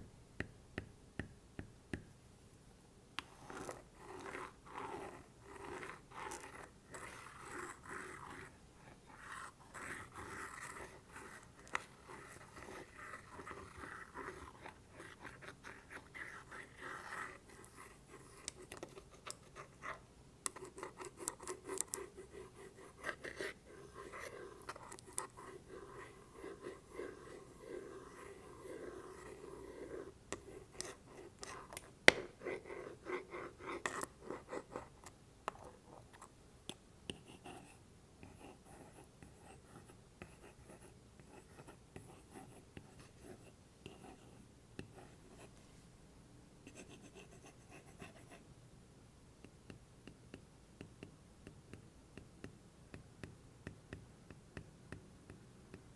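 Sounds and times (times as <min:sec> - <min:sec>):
stylus tapping on wood: 0:00.4 - 0:02.1.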